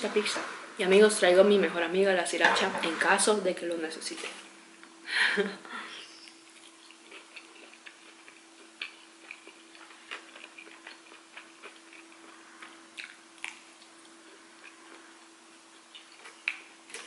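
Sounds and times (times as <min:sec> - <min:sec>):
low steady hum: 0:00.0 - 0:17.0
chewing with wet mouth sounds: 0:06.2 - 0:17.0.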